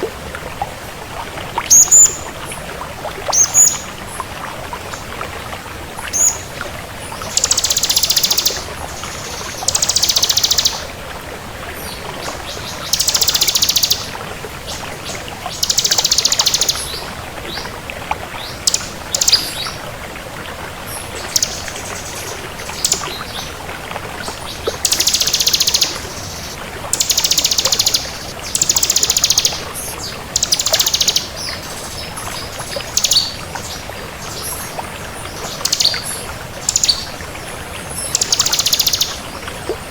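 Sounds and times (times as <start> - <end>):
bird chirps: 7.4 - 8.6, 9.7 - 10.8, 18.7 - 19.6, 24.8 - 29.6, 30.4 - 31.4, 38.1 - 39.2
bird buzzy trills: 24.8 - 29.6
background hiss: 24.8 - 32.1.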